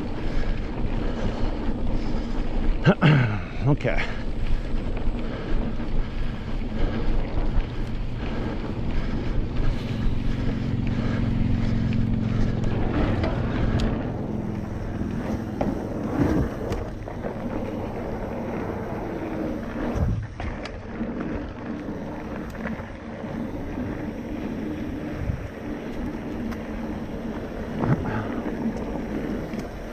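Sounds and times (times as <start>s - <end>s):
bike tyre and drivetrain noise: 0.0s - 29.9s
wind on microphone: 4.2s - 29.9s.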